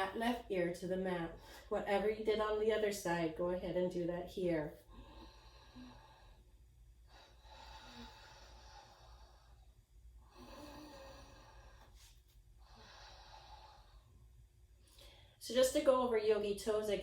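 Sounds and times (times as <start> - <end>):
low steady hum: 0.0 - 17.0
slow breathing: 4.8 - 15.4.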